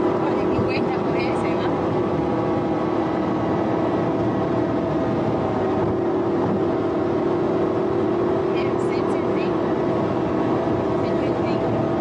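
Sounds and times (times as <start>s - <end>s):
vehicle engine droning: 0.0s - 12.0s
wind rushing over microphone: 0.0s - 12.0s.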